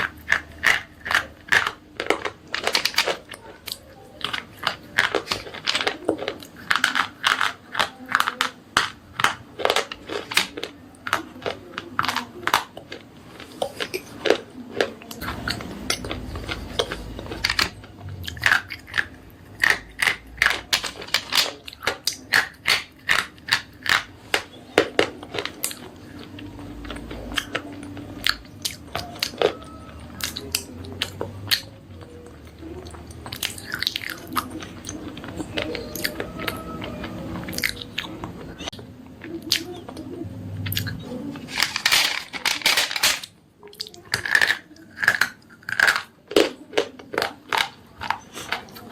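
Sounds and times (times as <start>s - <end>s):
crunchy chewing: 0.0s - 42.6s, 43.6s - 48.9s.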